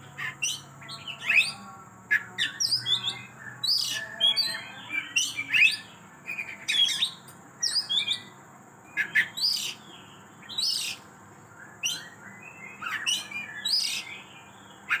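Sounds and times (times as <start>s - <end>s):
bird whistling and chirping: 2.2s - 8.3s, 9.0s - 11.0s, 11.6s - 14.3s.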